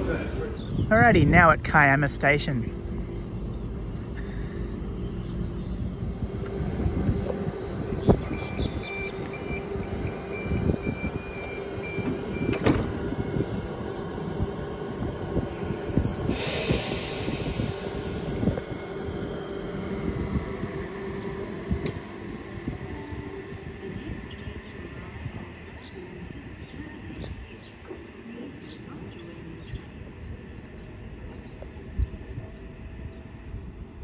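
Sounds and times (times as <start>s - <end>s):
electric train humming: 0.0s - 34.0s
train doors shutting knock: 8.1s - 13.8s, 21.6s - 22.4s
repeated high beeps: 8.2s - 12.6s
air brakes hissing: 16.0s - 18.8s.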